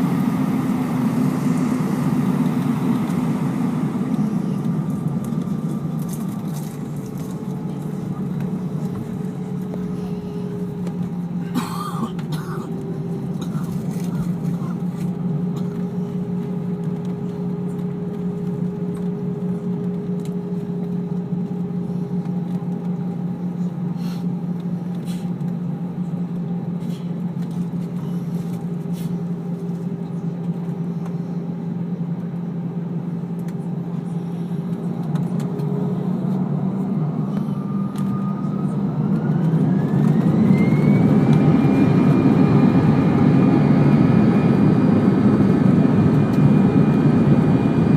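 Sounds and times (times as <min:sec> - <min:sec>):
jet engine whine rising: 0:00.0 - 0:11.4, 0:27.6 - 0:47.9
jet engines humming in cabin: 0:00.0 - 0:47.9.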